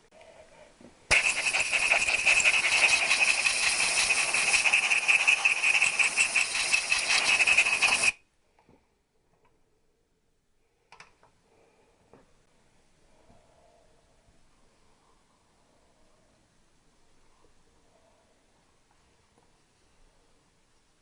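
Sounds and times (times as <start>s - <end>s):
loud hiss of air: 1.1s - 8.2s.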